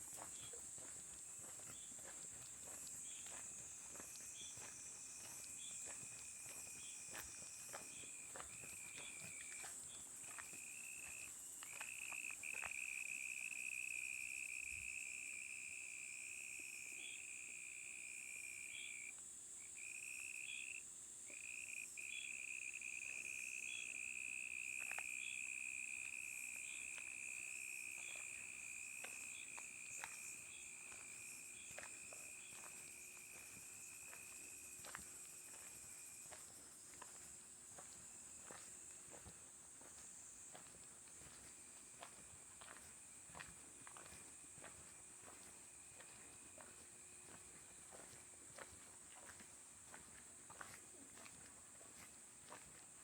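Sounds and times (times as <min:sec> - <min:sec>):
soft footsteps clicking: 0:00.0 - 0:12.9, 0:24.8 - 0:25.2, 0:26.0 - 0:53.0
cricket trilling: 0:00.0 - 0:51.3.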